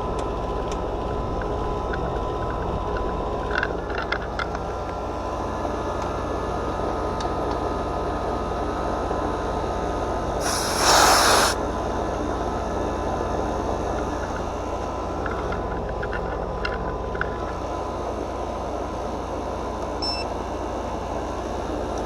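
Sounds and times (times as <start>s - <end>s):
loud hiss: 10.4s - 11.6s.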